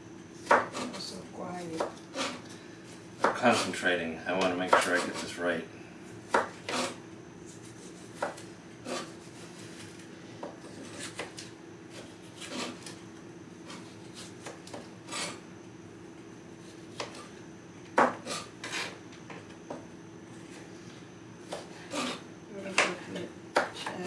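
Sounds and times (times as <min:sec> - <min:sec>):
knife chopping on a board: 0:00.4 - 0:01.0, 0:01.8 - 0:02.4, 0:03.2 - 0:03.6, 0:04.4 - 0:05.2, 0:06.3 - 0:07.0, 0:07.8 - 0:09.5, 0:10.4 - 0:12.9, 0:13.7 - 0:15.4, 0:16.9 - 0:17.3, 0:18.0 - 0:18.5, 0:21.4 - 0:22.2, 0:22.8 - 0:24.0.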